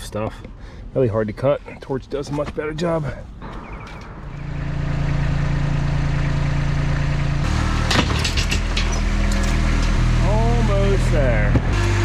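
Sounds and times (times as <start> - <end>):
vehicle engine running: 3.4 - 12.0.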